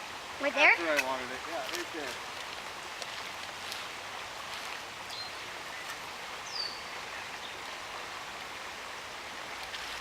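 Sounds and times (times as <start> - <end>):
river water rushing: 0.0 - 10.0
bird chirp: 5.1 - 7.7.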